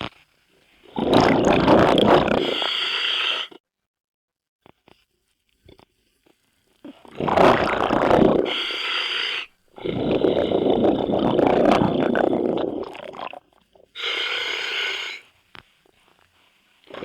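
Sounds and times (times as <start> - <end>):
underwater bubbles rumbling: 0.9 - 2.5, 7.0 - 8.5, 9.8 - 13.4.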